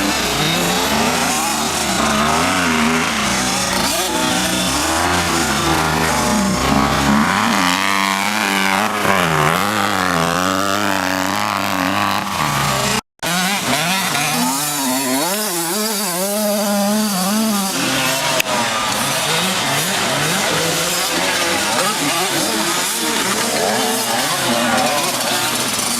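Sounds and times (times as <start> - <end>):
two-stroke motocross engine revving: 0.0 - 25.9.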